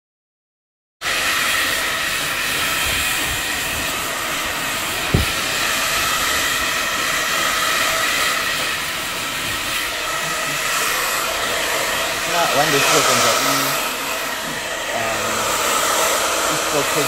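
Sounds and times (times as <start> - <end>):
hair dryer blowing: 1.0 - 17.0
low thump: 5.1 - 5.5.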